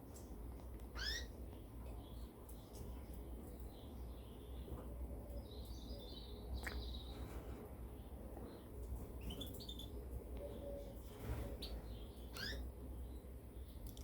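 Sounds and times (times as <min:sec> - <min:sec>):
finches chirping: 0:01.0 - 0:01.3, 0:08.5 - 0:10.9, 0:11.6 - 0:13.2.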